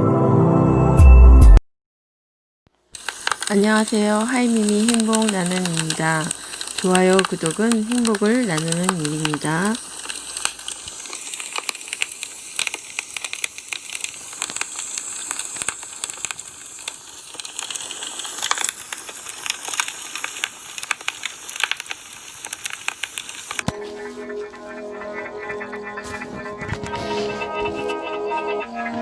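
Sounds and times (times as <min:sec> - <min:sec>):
music: 0:00.0 - 0:01.6, 0:23.7 - 0:29.0
wood campfire crackling: 0:02.8 - 0:28.0.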